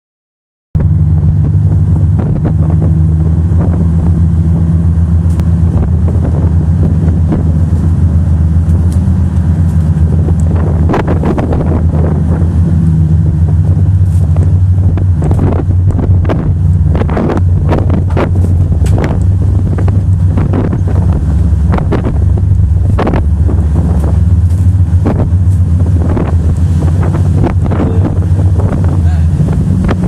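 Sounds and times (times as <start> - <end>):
motorboat engine droning: 0.8 - 30.0
wind noise on microphone: 0.8 - 30.0.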